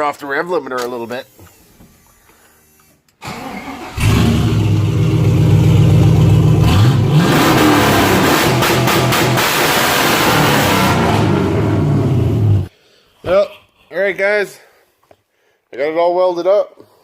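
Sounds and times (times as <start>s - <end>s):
truck engine revving unmuffled: 3.6s - 12.7s.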